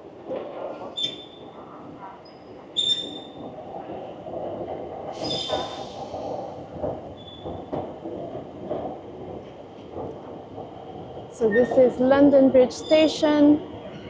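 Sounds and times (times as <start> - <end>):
railway station background noise: 0.0 - 14.0
train wheels squealing: 1.0 - 1.6, 2.2 - 3.4, 5.2 - 6.1, 7.2 - 7.7, 11.4 - 11.8.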